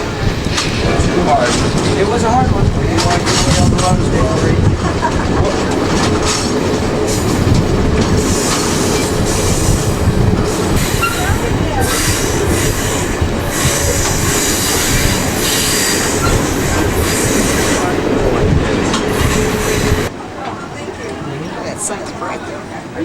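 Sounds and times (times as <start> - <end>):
train wheels rumbling on track: 0.0 - 23.0
brief wheel squeals: 8.0 - 20.1.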